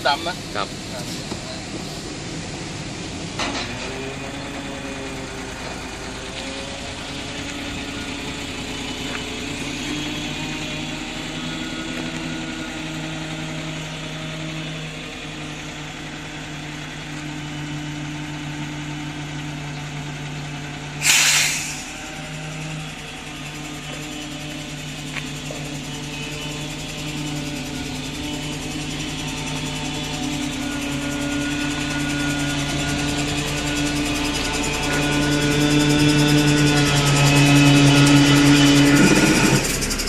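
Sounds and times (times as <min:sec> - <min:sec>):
truck engine running: 0:00.0 - 0:40.0
air hiss: 0:21.0 - 0:22.0.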